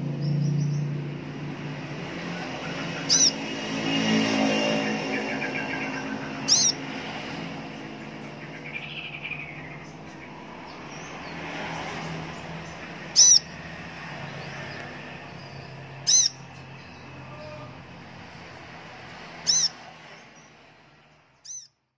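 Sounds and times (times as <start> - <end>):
bird high sharp calls: 2.3 - 6.9, 12.5 - 17.7, 19.3 - 20.5, 21.4 - 21.8.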